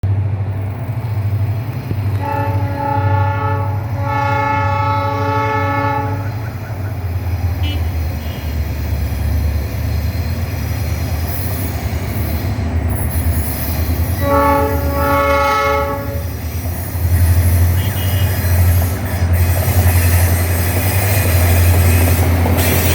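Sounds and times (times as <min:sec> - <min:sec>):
locomotive engine rumble: 0:00.0 - 0:22.9
multi-tone air horn blasts: 0:02.2 - 0:06.5, 0:07.6 - 0:08.6, 0:14.2 - 0:16.3, 0:17.7 - 0:18.6.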